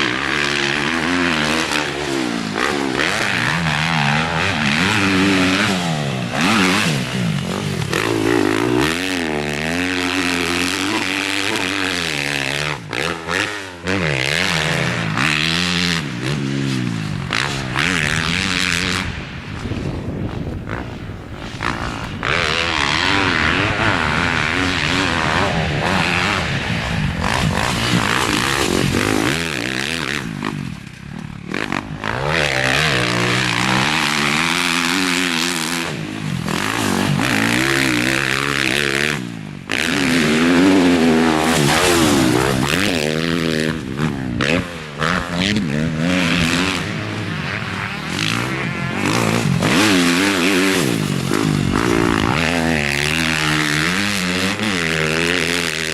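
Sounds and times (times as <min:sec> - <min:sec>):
motocross bike engine revving: 0:00.0 - 0:55.9.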